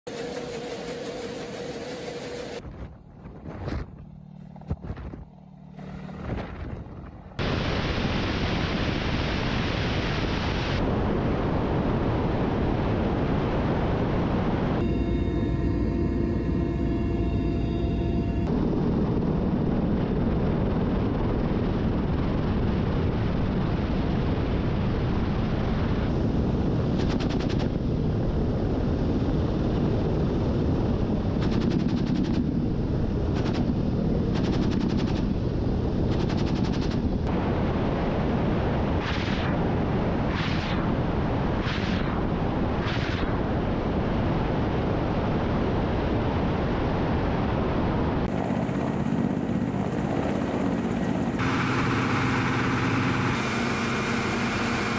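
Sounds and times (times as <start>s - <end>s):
helicopter engine and rotor drone: 0.1s - 7.4s, 14.8s - 22.7s, 26.1s - 37.3s, 48.2s - 54.9s
rapid gunfire bursts: 31.4s - 32.4s, 33.4s - 35.3s.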